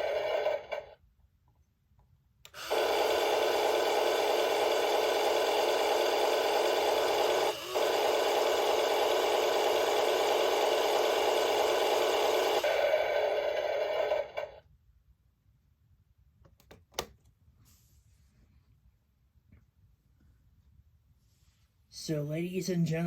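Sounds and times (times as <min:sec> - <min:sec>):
toy tractor buzzing rumble: 0:00.0 - 0:01.0, 0:02.5 - 0:14.6.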